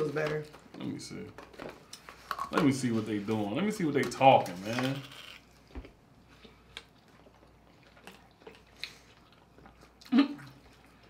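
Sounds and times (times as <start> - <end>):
person chewing food: 5.2 - 11.0.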